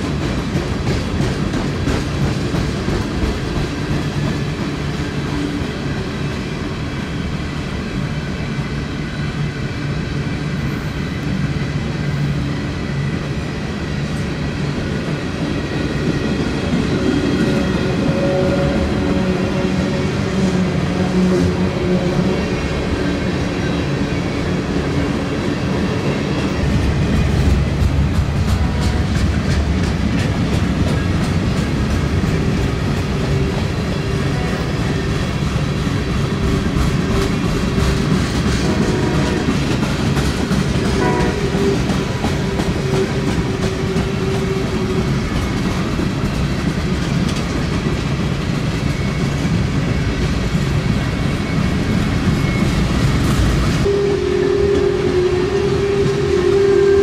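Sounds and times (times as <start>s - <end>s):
freight train rumbling past: 0.0s - 57.0s
wheels clacking over rail joints: 26.6s - 34.6s.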